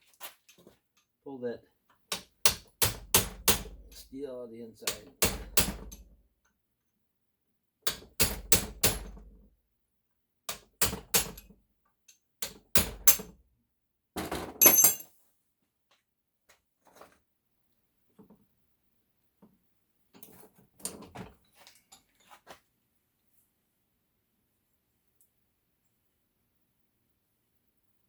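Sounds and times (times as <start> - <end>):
metallic clattering: 14.6 - 15.1.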